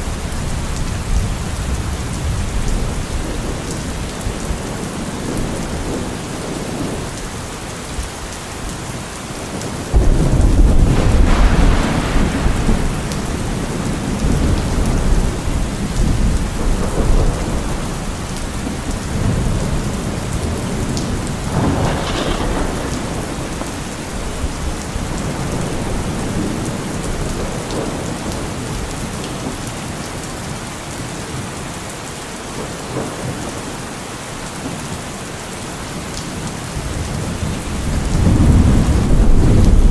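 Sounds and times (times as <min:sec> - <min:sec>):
steady rain falling: 0:00.0 - 0:39.9
thunder rumbling: 0:09.4 - 0:29.3, 0:36.4 - 0:39.9.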